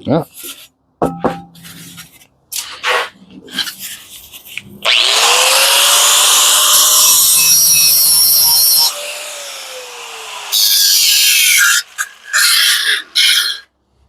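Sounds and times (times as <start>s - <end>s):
power tool grinding metal: 4.8s - 13.6s.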